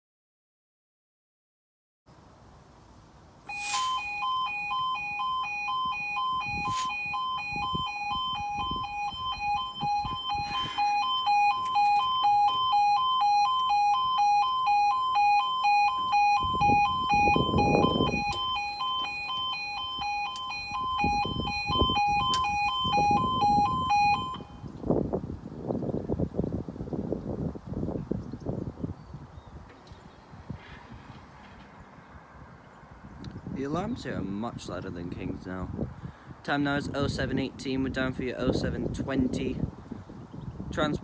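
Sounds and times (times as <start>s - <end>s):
pulsing two-tone crossing alarm: 3.5s - 24.7s.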